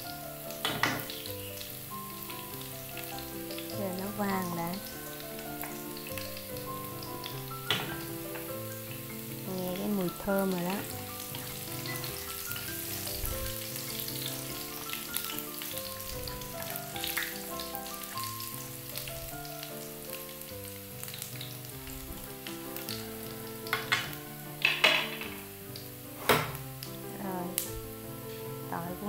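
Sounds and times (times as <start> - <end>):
garlic sizzling in hot oil: 0.0 - 29.0
spatula striking pan: 0.6 - 1.2, 7.2 - 8.5.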